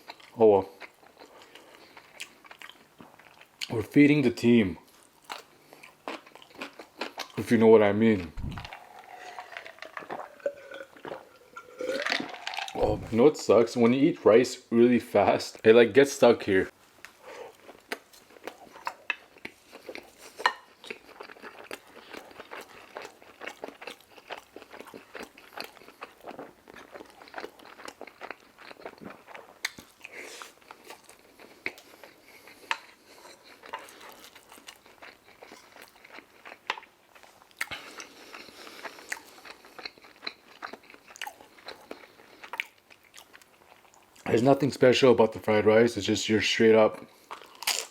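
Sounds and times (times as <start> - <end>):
person chewing food: 0.0 - 3.7, 4.8 - 13.3, 17.0 - 44.3, 47.0 - 47.9
crunchy clicks and wet smacks: 17.0 - 37.8.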